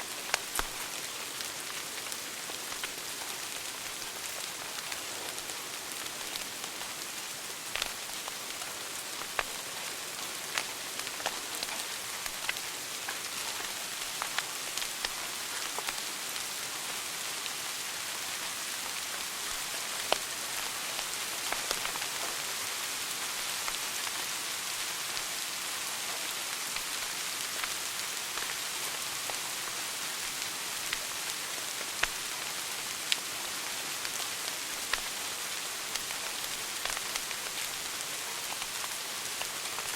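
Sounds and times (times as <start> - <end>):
wood fire crackling: 0.0 - 39.9
fire popping: 0.1 - 16.1, 18.8 - 22.2, 26.7 - 32.5, 34.0 - 39.9.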